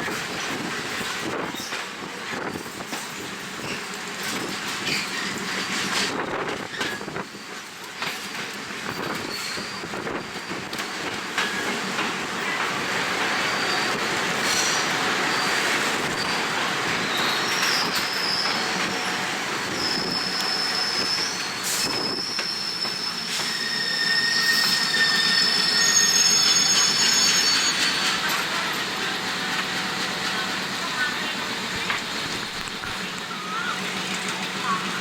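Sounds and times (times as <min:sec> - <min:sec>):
train rumble: 0:00.0 - 0:35.0
train wheels squealing: 0:01.5 - 0:12.6, 0:13.4 - 0:29.4
wind noise on microphone: 0:06.1 - 0:07.4, 0:21.7 - 0:22.4.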